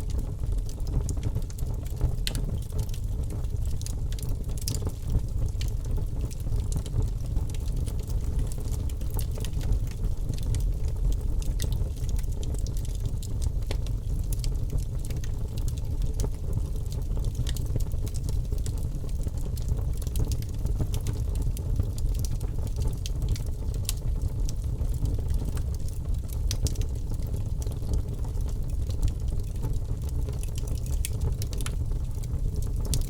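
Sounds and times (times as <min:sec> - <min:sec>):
fire crackling and popping: 0:00.0 - 0:33.0
fire rumbling in a fireplace: 0:00.0 - 0:33.0.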